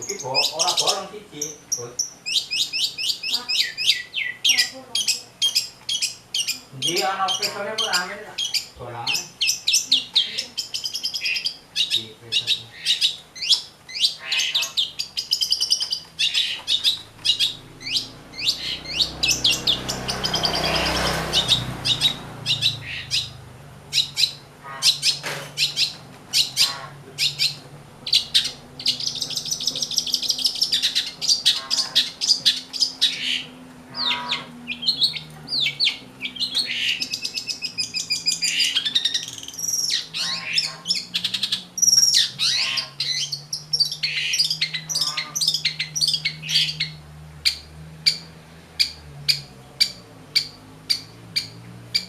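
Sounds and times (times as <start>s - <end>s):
shrike chirping and chattering: 0.0s - 52.0s
noisy rush: 16.7s - 40.2s.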